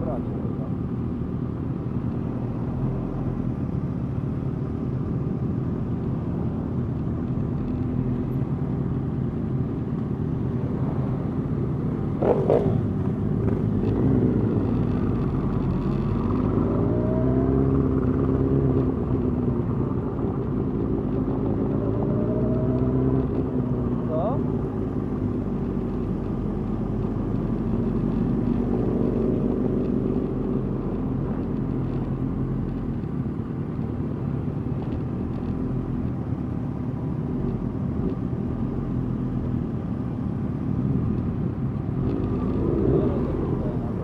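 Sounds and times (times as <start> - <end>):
motorcycle engines running: 0.0 - 44.0
engine revving: 12.2 - 15.3, 42.0 - 44.0.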